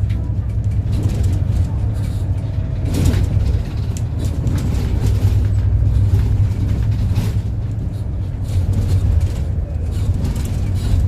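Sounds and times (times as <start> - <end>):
clicks in bus cabin: 0.0 - 5.6
bus engine and road drone: 0.0 - 11.0.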